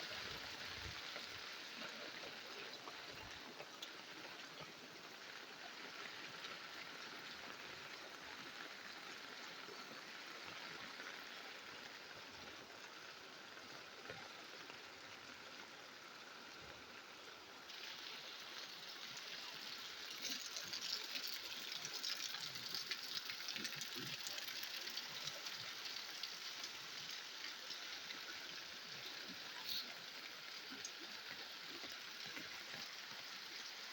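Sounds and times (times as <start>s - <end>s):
raindrops hitting close: 20.1s - 33.2s.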